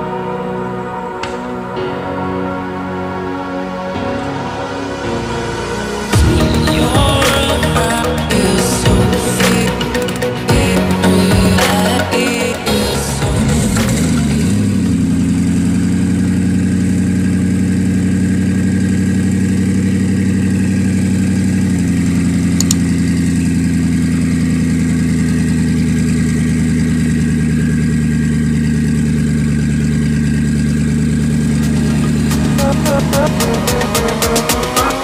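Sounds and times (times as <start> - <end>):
car engine idling: 5.8 - 35.0.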